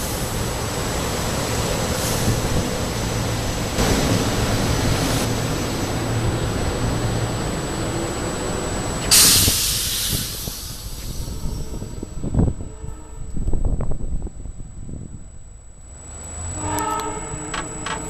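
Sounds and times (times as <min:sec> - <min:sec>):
electric train humming: 0:00.0 - 0:18.0.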